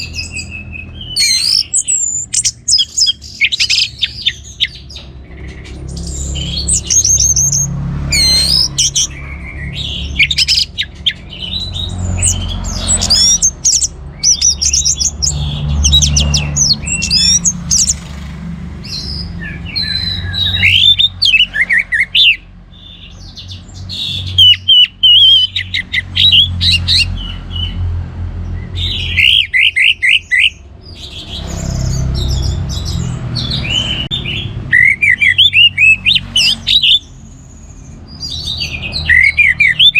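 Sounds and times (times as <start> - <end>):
thrush singing: 0.0 - 27.9, 28.6 - 39.9.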